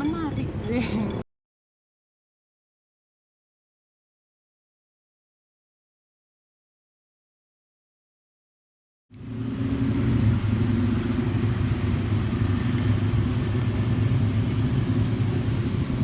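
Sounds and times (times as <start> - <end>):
vehicle engine humming: 0.0 - 1.2, 9.1 - 16.0.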